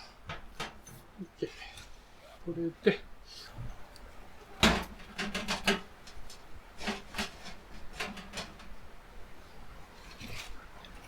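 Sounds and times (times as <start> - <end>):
hard objects knocking and clattering: 4.6 - 8.8.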